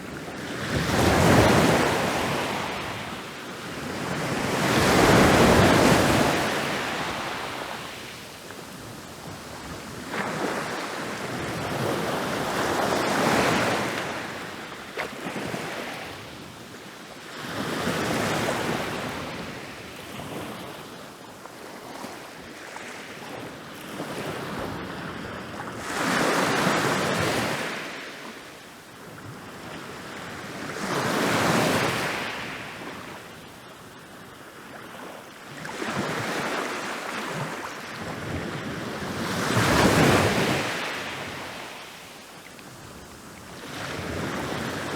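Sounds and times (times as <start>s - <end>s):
ocean waves breaking on beach: 0.0s - 14.5s, 35.6s - 44.9s.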